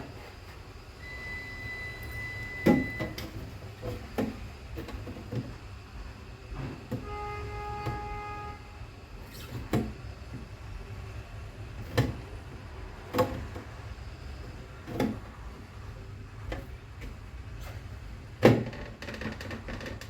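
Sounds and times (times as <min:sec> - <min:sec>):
plastic shelves clacking and scraping: 0:02.8 - 0:05.8, 0:11.7 - 0:20.0.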